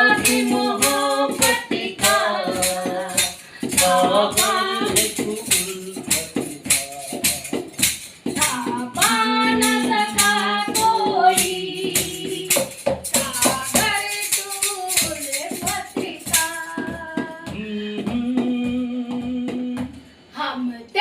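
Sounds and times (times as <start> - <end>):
person singing: 0.0 - 7.8, 8.4 - 19.9
steady tambourine beat: 0.0 - 20.1.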